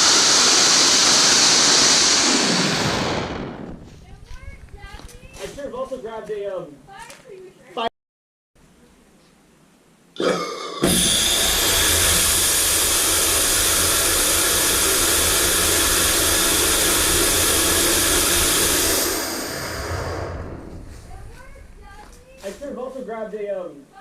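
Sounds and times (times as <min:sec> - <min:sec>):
rocket motor sputter: 0:00.0 - 0:03.8, 0:10.8 - 0:20.6
rocket motor roaring: 0:00.0 - 0:03.9, 0:10.8 - 0:21.9.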